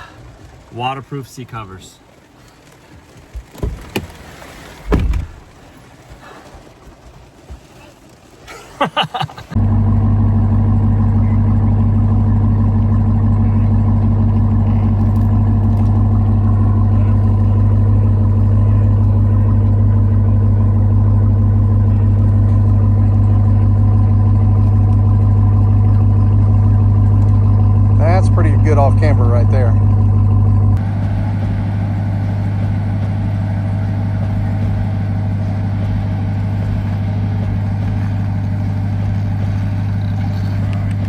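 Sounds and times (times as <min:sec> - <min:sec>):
truck engine droning under load: 0:09.5 - 0:41.0.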